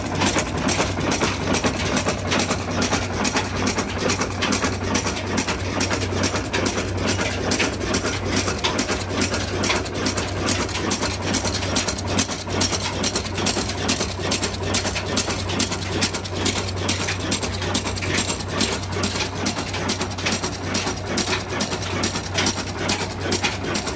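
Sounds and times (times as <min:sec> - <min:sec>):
stationary engine knocking: 0:00.0 - 0:23.9.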